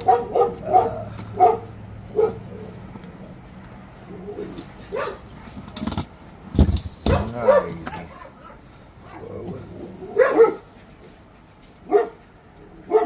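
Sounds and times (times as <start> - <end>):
dog barking: 0.0 - 2.5, 4.9 - 5.3, 7.1 - 9.3, 10.1 - 10.7, 11.9 - 12.2.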